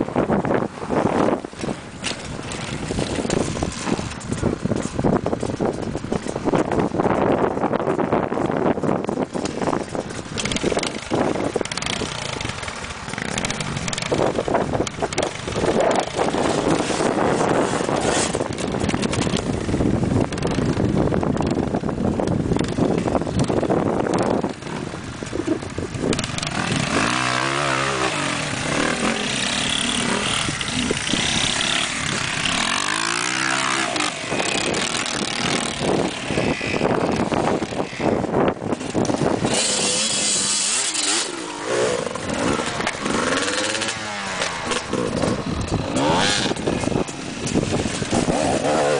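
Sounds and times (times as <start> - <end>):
dirt bike engine revving: 9.3 - 21.6, 22.5 - 48.9.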